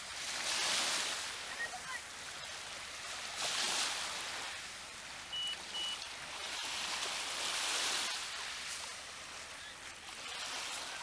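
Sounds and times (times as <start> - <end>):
sea water washing and hissing: 0.0 - 11.0
short high peeps: 5.3 - 6.0.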